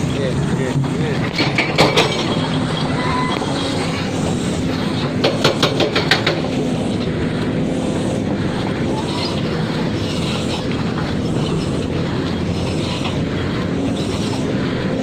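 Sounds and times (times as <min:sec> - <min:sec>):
diesel engine humming: 0:00.0 - 0:15.0
metallic clanks: 0:00.8 - 0:06.6.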